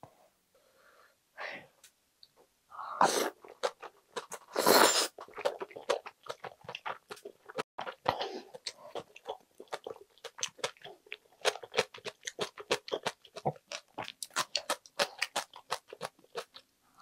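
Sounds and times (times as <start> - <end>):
wet crunchy chewing: 3.3 - 16.7.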